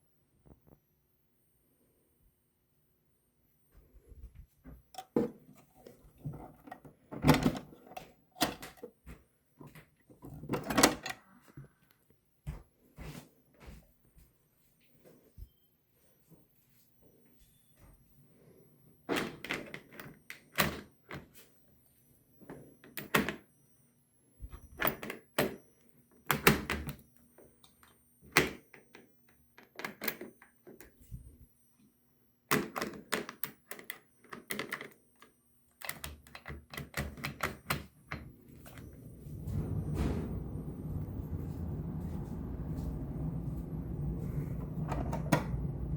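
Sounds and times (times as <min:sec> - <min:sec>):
steady low rumbling: 0:38.4 - 0:45.9.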